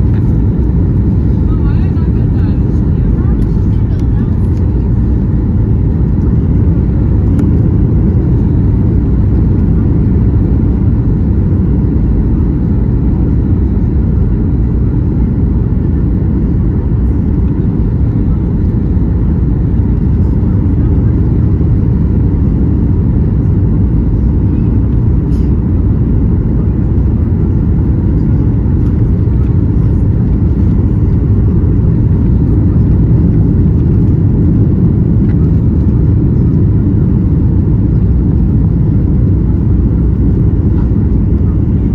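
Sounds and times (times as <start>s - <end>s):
airplane cabin engine rumble: 0.0s - 41.9s.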